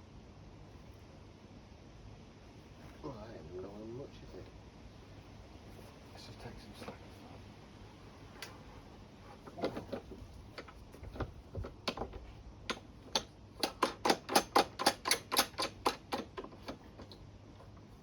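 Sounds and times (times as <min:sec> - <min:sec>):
sharp mechanical clicks: 0:12.7 - 0:17.2.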